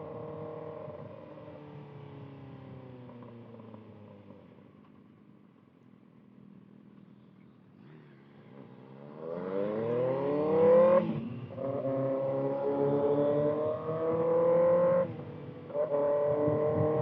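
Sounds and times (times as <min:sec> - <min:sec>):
motorcycle engine revving: 0:07.8 - 0:17.0.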